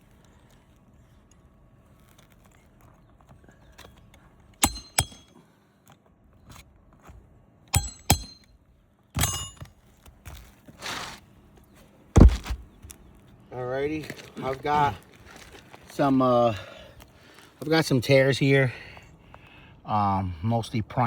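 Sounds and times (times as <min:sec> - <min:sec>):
pry bar knocks: 0:04.6 - 0:05.3, 0:07.8 - 0:08.5, 0:09.2 - 0:09.7, 0:12.2 - 0:12.6
pry bar scraping: 0:04.6 - 0:05.3, 0:07.8 - 0:08.5, 0:10.3 - 0:11.2, 0:12.2 - 0:13.0
pry bar clinking on metal: 0:04.6 - 0:05.4, 0:07.8 - 0:08.5, 0:09.2 - 0:09.7
heavy thud: 0:12.2 - 0:12.7.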